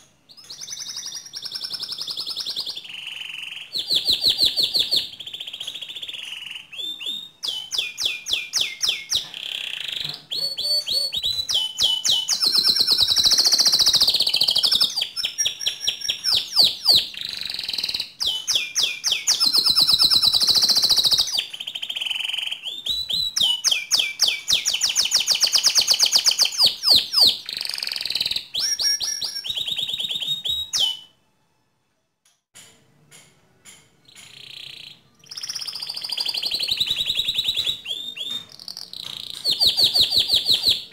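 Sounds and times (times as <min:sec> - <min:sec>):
canary singing trills: 0:00.0 - 0:31.2, 0:34.0 - 0:40.9.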